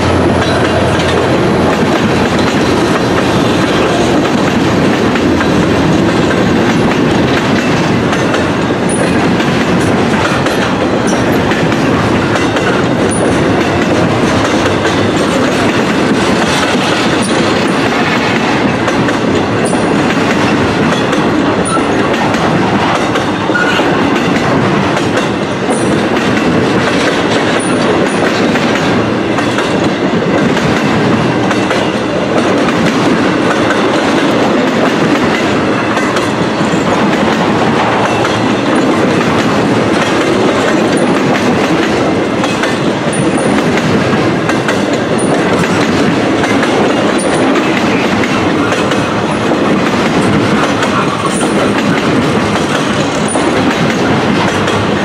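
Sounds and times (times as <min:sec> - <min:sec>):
train wheels clattering on rails: 0:00.0 - 0:55.0.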